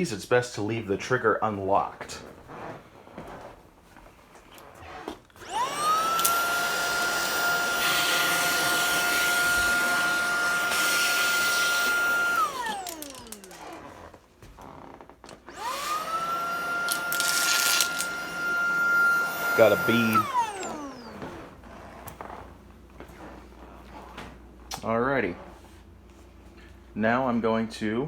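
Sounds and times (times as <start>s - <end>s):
cordless vacuum whine: 4.6s - 24.5s.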